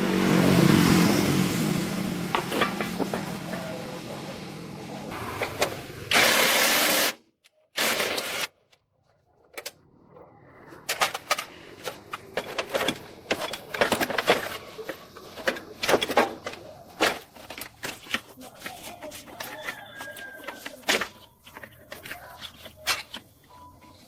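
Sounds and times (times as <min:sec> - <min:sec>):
loud hissing bursts: 0:06.1 - 0:07.2
hand tools clicking and tapping: 0:11.0 - 0:24.0.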